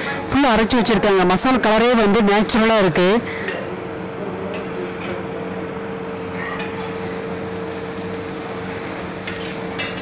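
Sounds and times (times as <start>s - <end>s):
low hum of kitchen equipment: 0.0s - 10.0s
chicken sizzling on a griddle: 6.2s - 10.0s.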